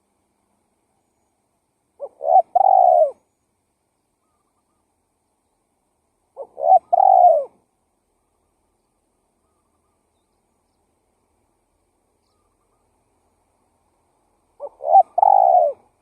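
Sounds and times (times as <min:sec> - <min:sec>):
dove cooing: 0:02.0 - 0:03.2, 0:06.4 - 0:07.6, 0:14.6 - 0:16.0.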